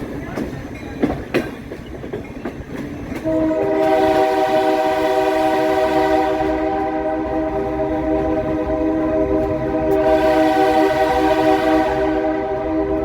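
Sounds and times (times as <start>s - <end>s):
train wheels clicking over joints: 0.0s - 5.3s
locomotive air horn blast: 3.2s - 13.0s.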